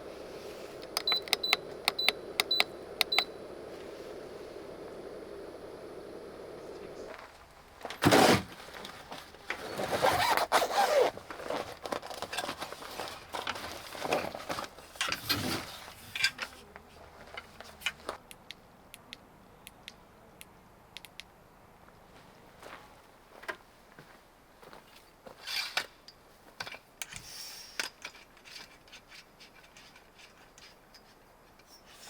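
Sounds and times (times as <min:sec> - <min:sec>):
gear scraping and rustling: 0:07.1 - 0:18.2, 0:27.9 - 0:32.0.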